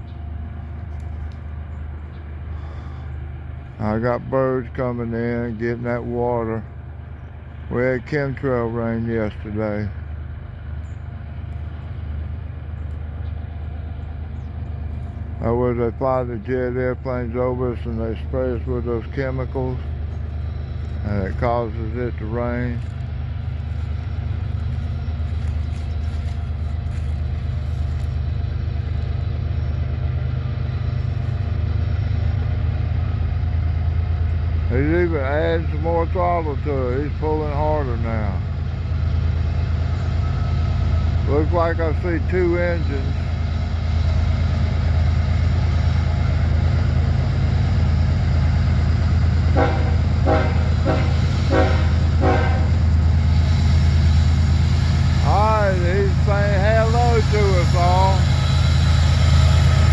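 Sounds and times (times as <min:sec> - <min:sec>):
diesel locomotive engine rumble: 0:00.0 - 0:59.9
locomotive horn toots: 0:47.6 - 0:59.9.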